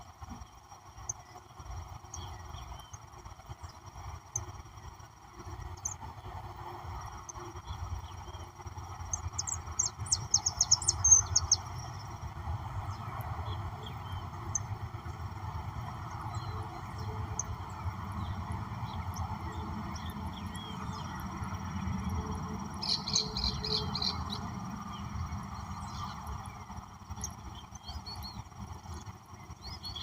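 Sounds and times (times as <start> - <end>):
birds chirping: 7.0 - 30.0.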